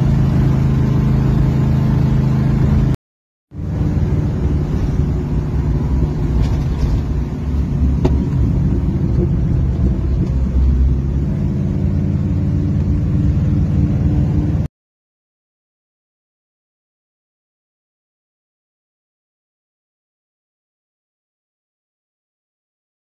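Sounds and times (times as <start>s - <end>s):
car engine running: 0.0s - 14.7s
road rumble: 0.0s - 14.7s.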